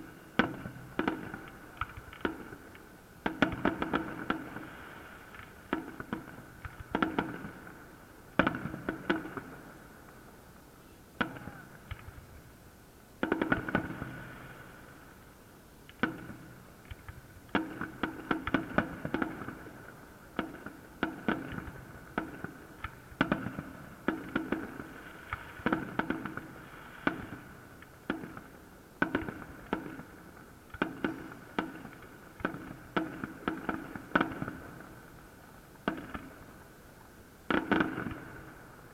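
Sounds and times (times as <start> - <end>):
fireworks bangs: 11.2 - 12.4, 37.5 - 38.9.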